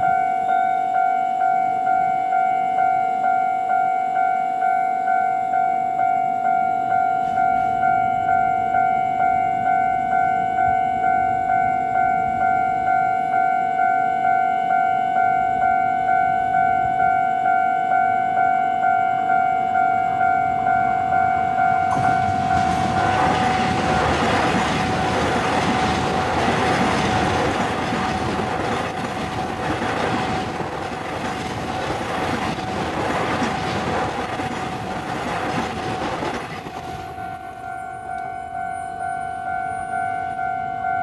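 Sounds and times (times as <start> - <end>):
level-crossing warning bell: 0.0 - 41.0
train wheels rumbling and clacking: 21.8 - 40.3.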